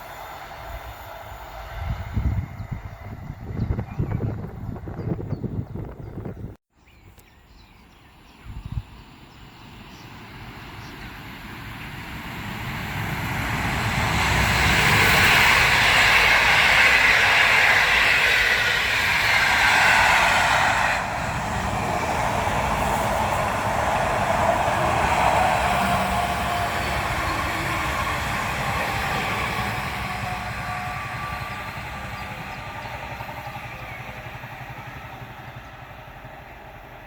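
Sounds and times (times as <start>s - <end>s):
passenger train passing: 0.0s - 6.6s, 7.9s - 37.0s.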